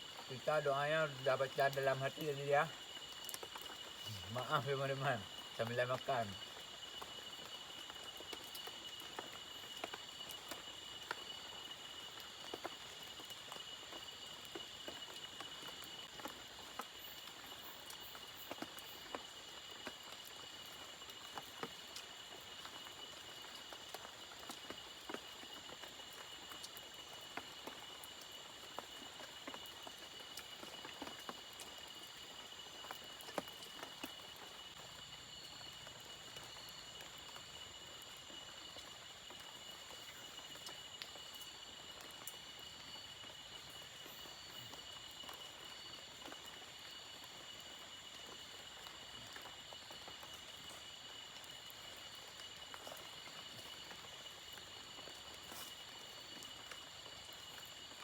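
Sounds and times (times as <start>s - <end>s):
crickets chirring: 0.0s - 58.0s
small ticks and taps: 2.2s - 4.1s, 5.6s - 22.8s, 23.4s - 34.7s.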